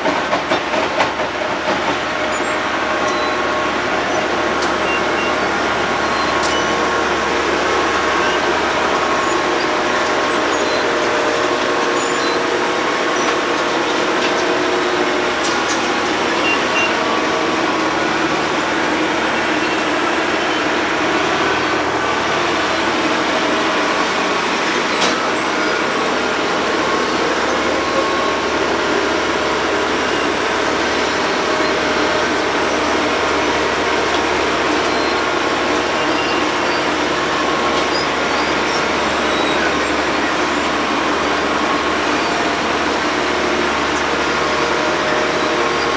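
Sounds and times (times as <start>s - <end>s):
road milling machine running: 0.0s - 45.9s.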